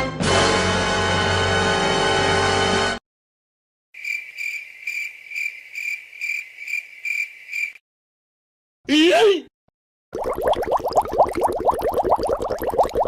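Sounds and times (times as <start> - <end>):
music: 0.0 - 3.0
cricket chirping: 4.0 - 7.8.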